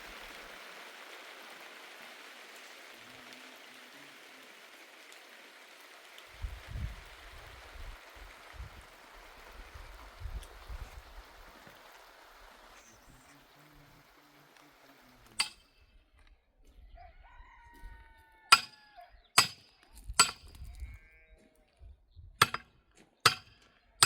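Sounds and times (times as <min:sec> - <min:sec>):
sharp ringing knocks: 0:15.4 - 0:15.7, 0:18.5 - 0:18.8, 0:19.4 - 0:20.6, 0:22.4 - 0:22.7, 0:23.3 - 0:23.6.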